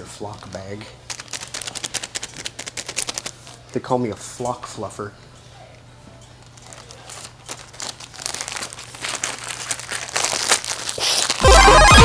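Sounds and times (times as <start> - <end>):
bag of fibres crinkling: 0.4 - 3.9, 6.4 - 11.5
loud music with heavy bass: 11.4 - 12.0.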